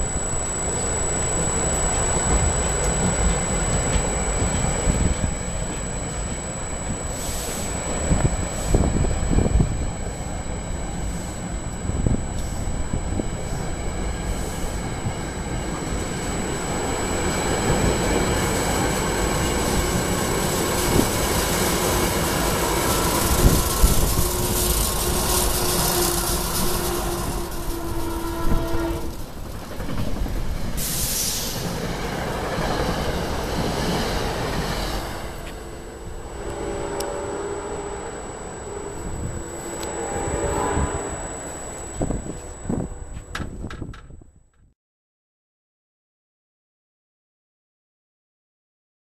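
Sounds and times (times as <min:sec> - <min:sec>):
train wheels rumbling on rail: 0:13.1 - 0:38.1.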